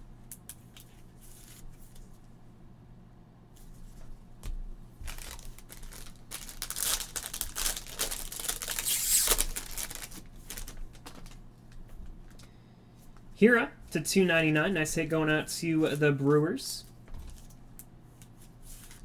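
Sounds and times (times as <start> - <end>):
plastic packaging crinkling: 5.0 - 12.5.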